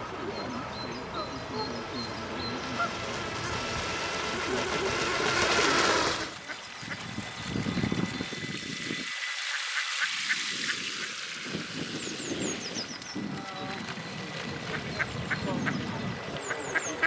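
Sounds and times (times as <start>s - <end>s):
ducks quacking: 1.1s - 3.2s, 14.7s - 17.0s
loud rushing noise: 2.7s - 9.1s.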